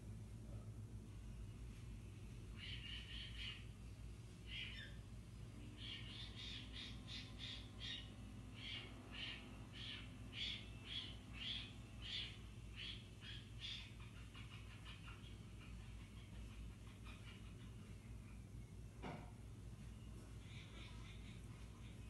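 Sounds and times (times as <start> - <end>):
low electrical hum: 0.0 - 22.0
harsh bird squawks: 2.5 - 3.8, 4.4 - 5.0, 5.7 - 18.4, 20.4 - 22.0.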